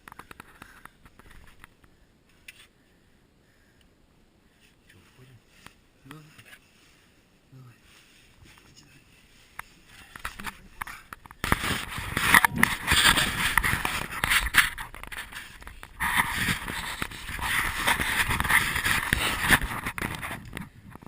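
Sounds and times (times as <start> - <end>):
scraping and rustling with clicks: 0.0 - 2.7, 9.4 - 21.0.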